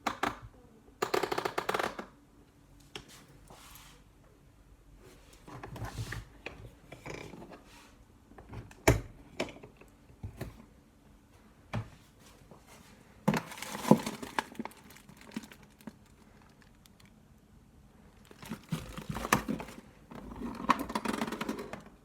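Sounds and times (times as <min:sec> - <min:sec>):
objects being handled: 0:13.3 - 0:17.2, 0:18.2 - 0:21.8.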